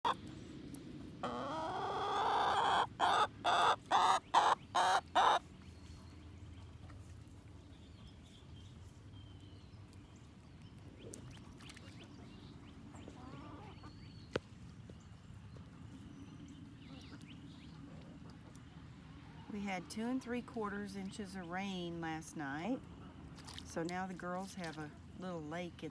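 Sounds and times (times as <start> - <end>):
hen clucking: 1.2 - 5.4, 13.0 - 13.9
hen squawking: 1.2 - 5.4.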